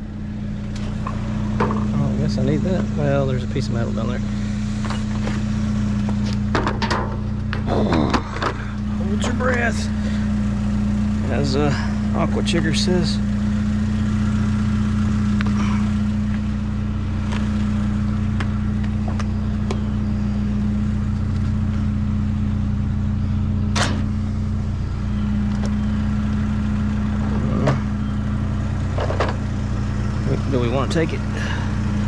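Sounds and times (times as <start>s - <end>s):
vehicle engine idling: 0.0s - 32.0s
sharp clicks and knocks: 6.0s - 8.6s.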